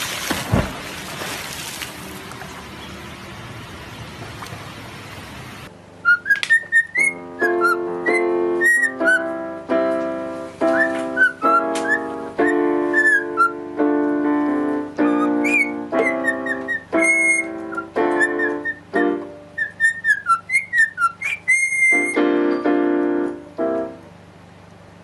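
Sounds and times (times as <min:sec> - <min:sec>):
river water: 0:00.0 - 0:04.9
cockatiel whistling a tune: 0:06.0 - 0:09.3, 0:10.6 - 0:13.6, 0:15.0 - 0:22.3
sustained chord accompaniment: 0:07.0 - 0:19.6, 0:22.0 - 0:24.4.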